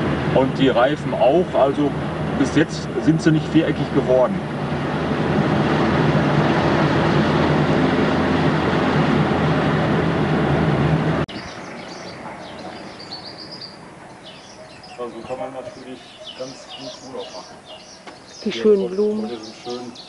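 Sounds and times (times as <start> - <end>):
car engine hum and road noise: 0.0 - 20.0
small birds chirping: 11.3 - 20.0.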